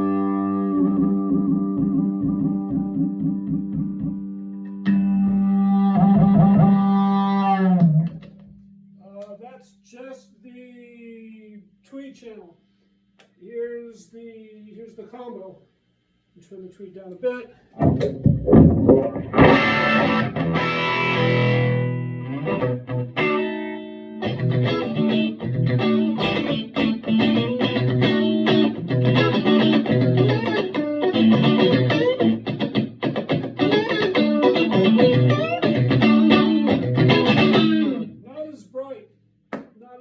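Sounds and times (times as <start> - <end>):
electric guitar riff: 0.0 - 8.6, 18.5 - 38.2.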